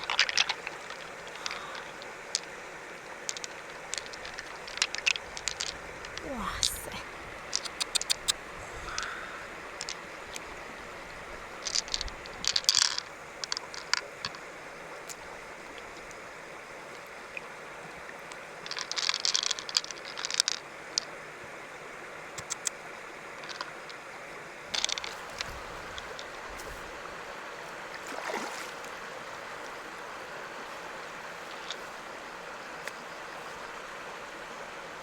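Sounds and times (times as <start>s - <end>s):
river water rushing: 0.0s - 7.6s, 22.9s - 35.0s
clicks and splashes in water: 0.0s - 10.5s, 11.5s - 14.4s, 18.3s - 21.1s, 22.4s - 24.0s, 24.7s - 26.9s, 27.9s - 29.9s.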